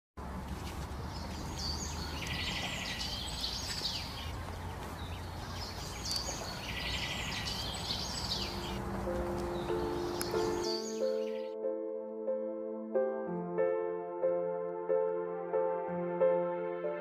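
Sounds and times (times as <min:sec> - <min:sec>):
low outdoor rumble: 0:00.2 - 0:10.6
songbird trilling: 0:01.1 - 0:08.8, 0:09.5 - 0:11.5.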